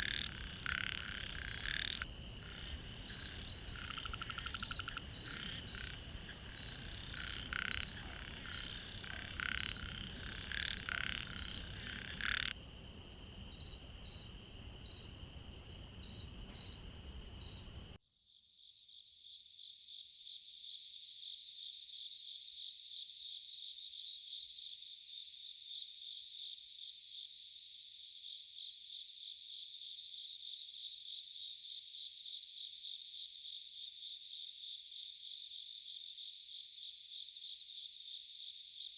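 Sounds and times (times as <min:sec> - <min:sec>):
frogs croaking: 0:00.0 - 0:15.3
crickets trilling: 0:00.0 - 0:38.9.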